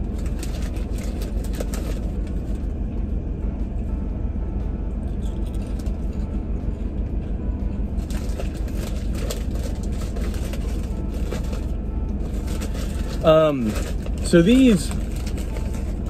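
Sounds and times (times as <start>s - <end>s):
low car hum: 0.0s - 16.0s
person crunching potato chip: 5.1s - 6.0s.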